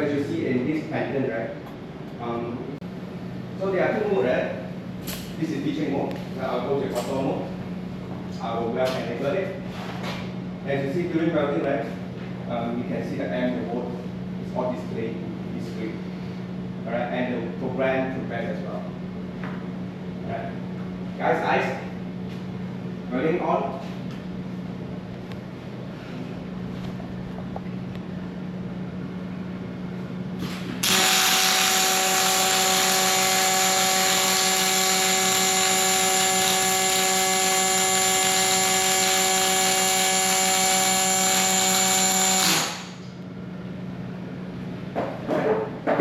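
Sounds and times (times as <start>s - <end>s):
welding arc hissing: 30.4s - 43.1s.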